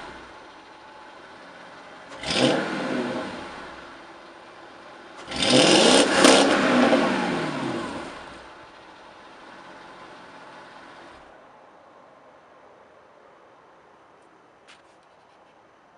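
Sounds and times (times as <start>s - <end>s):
car engine idling and revving: 0.0s - 11.4s.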